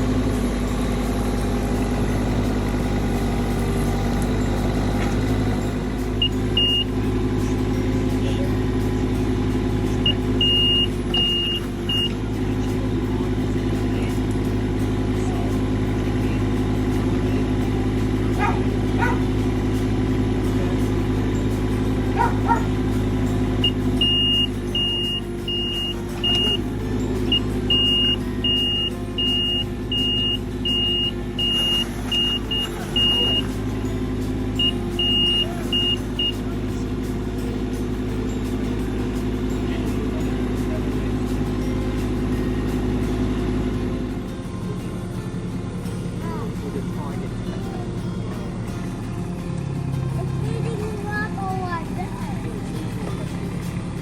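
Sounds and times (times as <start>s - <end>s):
excavator engine running: 0.0s - 54.0s
high warning beeper: 6.2s - 7.0s, 10.0s - 12.2s, 23.6s - 26.7s, 27.3s - 33.6s, 34.6s - 36.5s.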